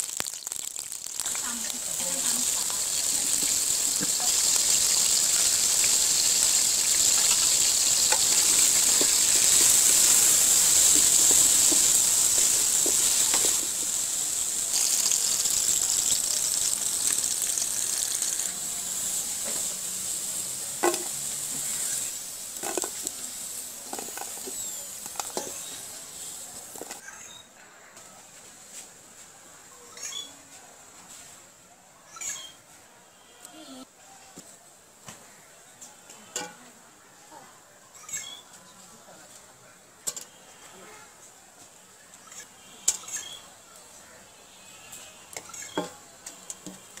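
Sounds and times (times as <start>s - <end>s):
potatoes sizzling in oil: 0.0s - 27.2s, 41.8s - 47.0s.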